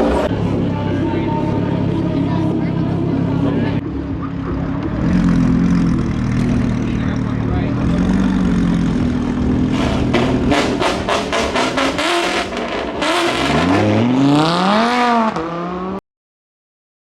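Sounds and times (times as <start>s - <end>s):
car engines running: 0.0s - 16.0s
engine revving: 4.9s - 16.0s
sharp exhaust pops: 9.7s - 13.5s.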